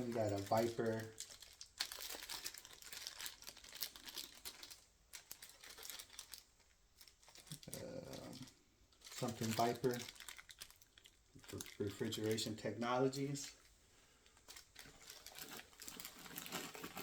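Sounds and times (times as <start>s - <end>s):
plastic tearing: 0.0s - 12.5s, 14.5s - 17.0s
plastic packaging crinkling: 0.0s - 17.0s.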